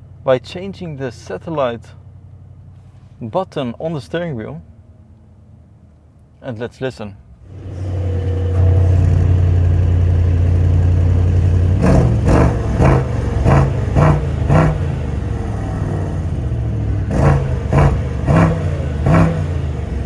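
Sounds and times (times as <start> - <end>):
car engine idling and revving: 7.3 - 20.0.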